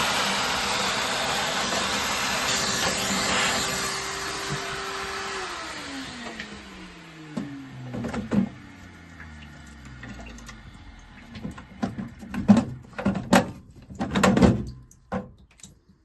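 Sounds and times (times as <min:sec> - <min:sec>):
motor whirring winding down: 0:00.0 - 0:11.8
sharp knocks and clatters: 0:11.4 - 0:15.5.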